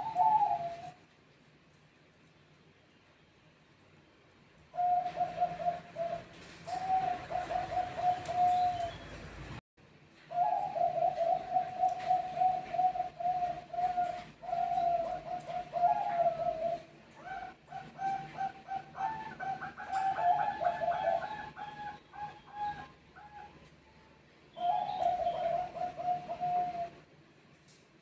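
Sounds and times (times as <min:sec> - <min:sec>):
doves cooing: 0:00.0 - 0:01.0, 0:04.7 - 0:09.3, 0:10.3 - 0:23.7, 0:24.5 - 0:27.1.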